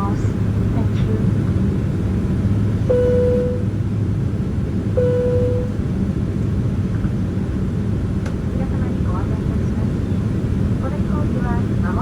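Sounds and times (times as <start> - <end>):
jet engine cabin drone: 0.0 - 12.0
short cabin tones: 2.9 - 3.7, 5.0 - 5.8.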